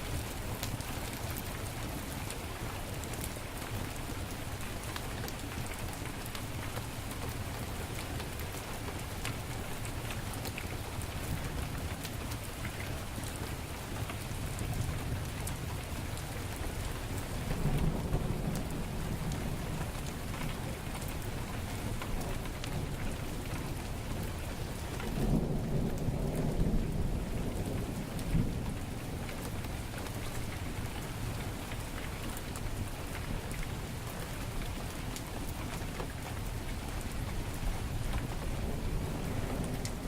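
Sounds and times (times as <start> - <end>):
heavy rain falling: 0.0 - 40.0
thunder rumbling: 17.4 - 21.4, 25.2 - 29.9, 37.5 - 40.0.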